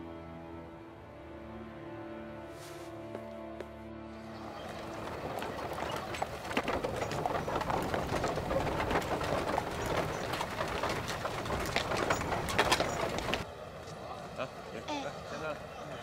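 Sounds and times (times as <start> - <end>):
outdoor background noise: 0.0 - 16.0
birds calling: 4.2 - 13.4.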